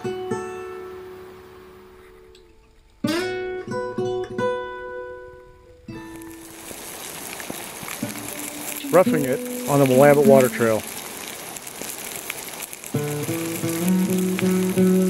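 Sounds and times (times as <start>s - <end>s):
acoustic guitar strumming chords: 0.0s - 6.5s, 8.0s - 10.9s, 12.9s - 15.0s.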